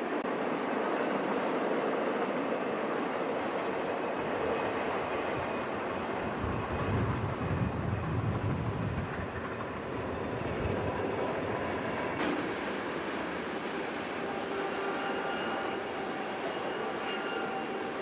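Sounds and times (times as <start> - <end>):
freight cars rolling on rails: 1.3 - 18.0.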